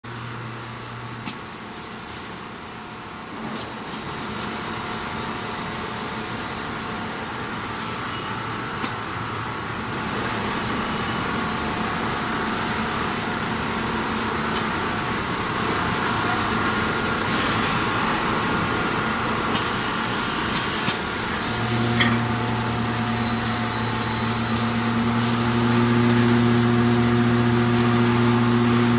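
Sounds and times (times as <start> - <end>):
coating drum machine running: 8.7 - 28.9.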